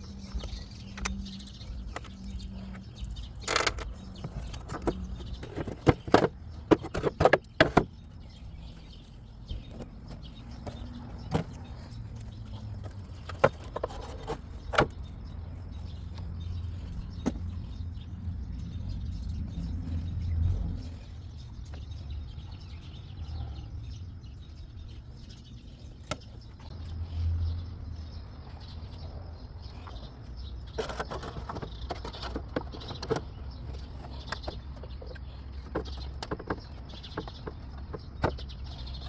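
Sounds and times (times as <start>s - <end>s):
sharp clicks and knocks: 0.3s - 8.0s.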